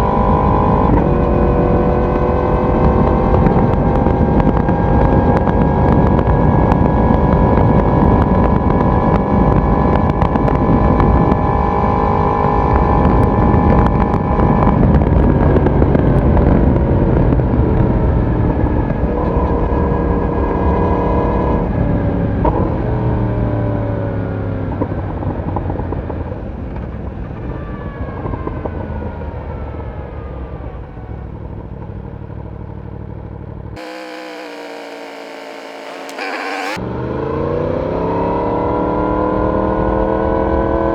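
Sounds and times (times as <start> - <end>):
motorcycle engine and exhaust: 33.8 - 36.8.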